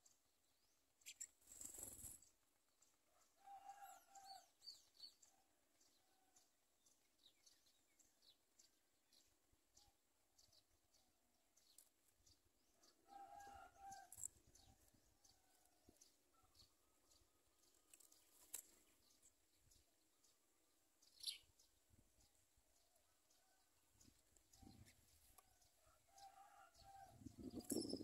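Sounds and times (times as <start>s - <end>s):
bird chirps: 1.0s - 2.2s, 21.1s - 21.6s, 27.3s - 28.0s.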